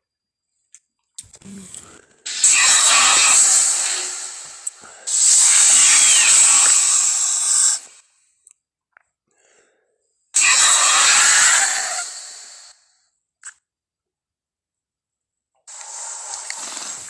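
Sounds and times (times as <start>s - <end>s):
creature breathy hisses: 1.4s - 8.0s, 10.4s - 12.7s, 15.7s - 17.0s.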